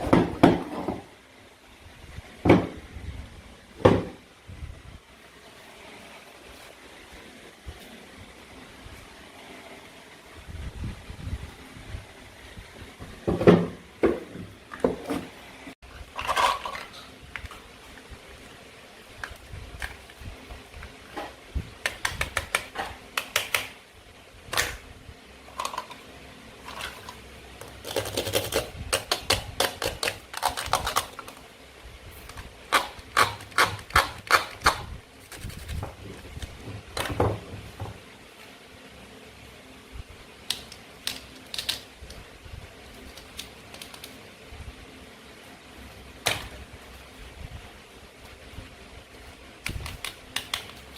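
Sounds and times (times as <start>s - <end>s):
toy plastic food clicking and clattering: 40.5s - 41.9s.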